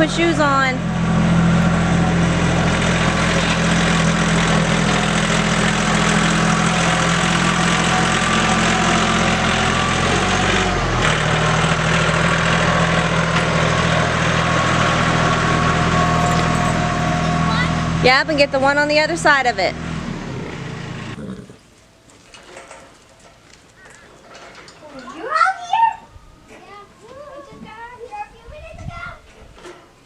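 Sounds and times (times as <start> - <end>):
vehicle engine running: 0.0 - 21.2.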